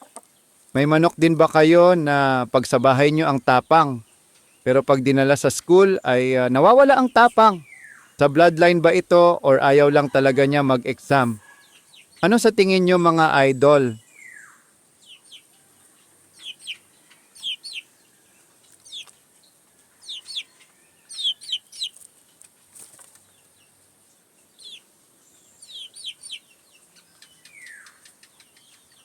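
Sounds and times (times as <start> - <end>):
chicken chirping: 0.0 - 29.0
chicken squawk: 10.0 - 12.3, 14.1 - 18.0, 19.8 - 22.1, 25.6 - 28.5.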